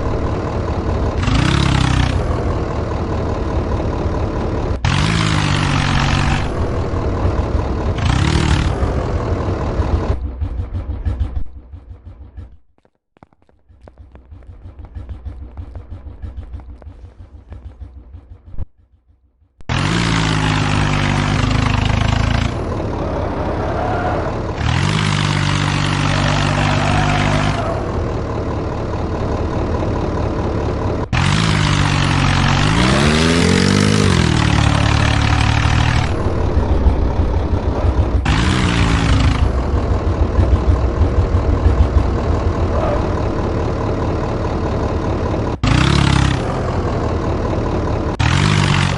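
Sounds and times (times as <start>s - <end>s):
tractor engine idling and revving: 0.0s - 48.9s.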